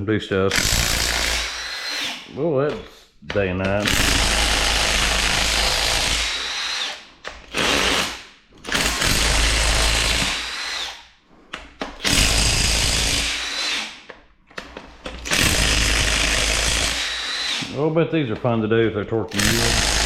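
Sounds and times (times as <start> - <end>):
impact wrench bursts: 0.5 - 2.3, 3.8 - 11.0, 12.0 - 14.0, 15.2 - 17.8, 19.3 - 20.0.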